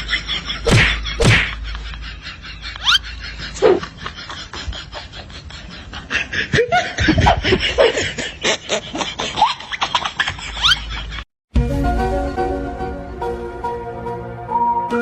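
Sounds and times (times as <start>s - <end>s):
laughter: 0.0s - 11.3s.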